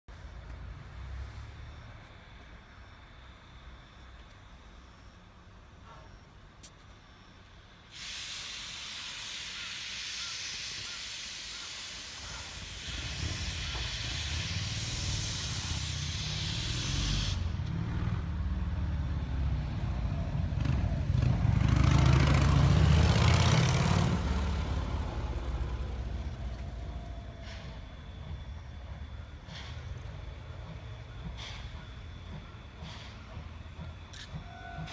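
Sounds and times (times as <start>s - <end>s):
steam locomotive rumble: 7.6s - 34.9s
steam hissing: 7.8s - 18.0s.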